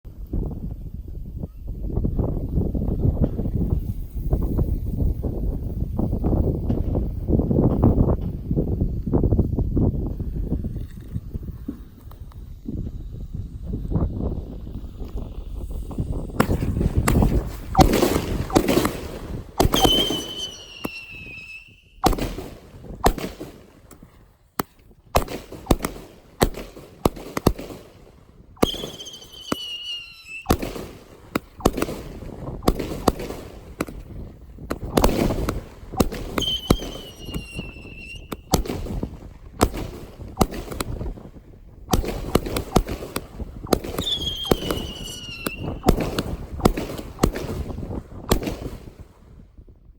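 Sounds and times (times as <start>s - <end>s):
fireworks bangs and crackles: 0.2s - 49.9s
falling firework whistle: 12.8s - 22.6s, 28.6s - 31.0s, 35.0s - 38.7s, 43.7s - 46.8s.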